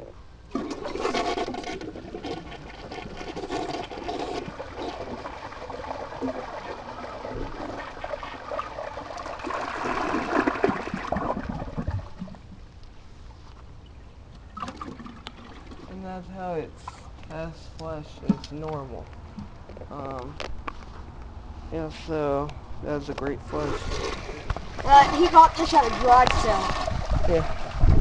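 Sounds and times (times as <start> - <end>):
water trickling into tank: 0.5 - 12.5, 14.4 - 16.0
toilet flushing: 4.4 - 12.2, 23.6 - 27.8.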